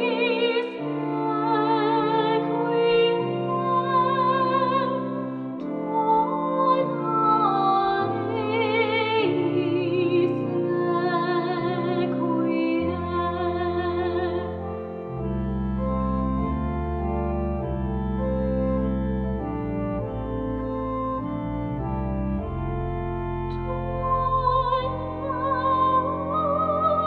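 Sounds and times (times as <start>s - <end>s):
classical singer with vibrato: 0.0s - 14.6s, 23.6s - 27.0s
organ chords: 0.0s - 27.0s.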